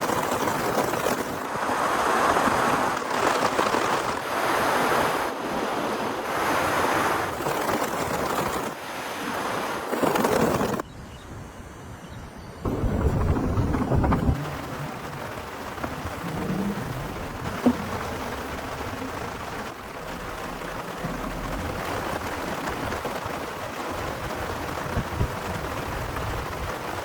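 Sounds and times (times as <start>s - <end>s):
strong wind: 0.0s - 27.0s
loud deep rumble: 12.6s - 22.5s
heavy rain: 12.7s - 27.0s.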